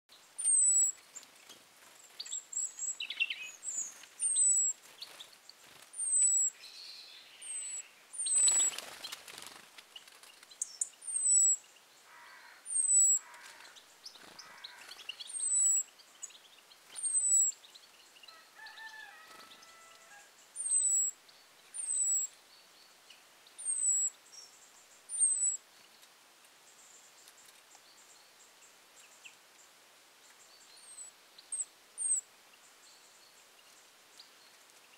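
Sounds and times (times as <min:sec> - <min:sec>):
soft bird chirps: 0:00.1 - 0:18.8, 0:19.5 - 0:34.9.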